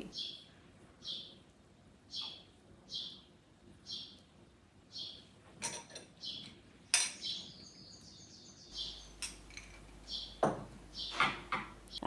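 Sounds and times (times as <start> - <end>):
bird twittering: 0.0 - 1.4, 2.1 - 3.2, 7.2 - 9.4, 10.0 - 11.2
small bird chirping: 0.0 - 1.4, 2.1 - 4.3, 4.9 - 12.0.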